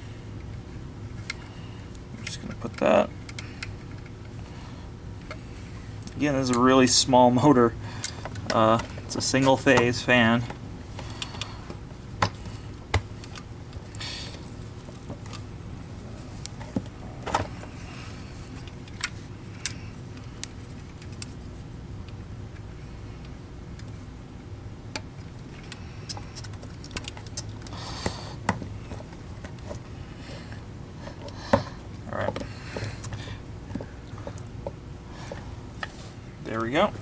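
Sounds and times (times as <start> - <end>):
steady low hum: 0.0 - 37.0
clicks and knocks of parts handled: 0.4 - 4.4, 8.0 - 15.5, 18.4 - 21.4, 24.9 - 29.9.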